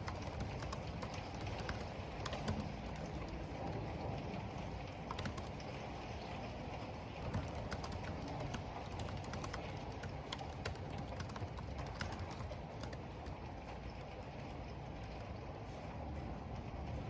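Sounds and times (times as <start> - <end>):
typing on computer keyboard: 0.0 - 3.7, 5.1 - 5.6, 7.2 - 15.3
rain: 0.0 - 17.0
wind: 0.0 - 17.0.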